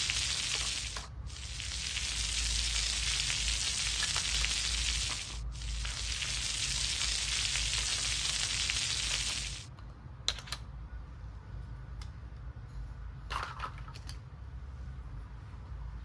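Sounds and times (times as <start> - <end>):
frying sizzle: 0.0 - 9.7.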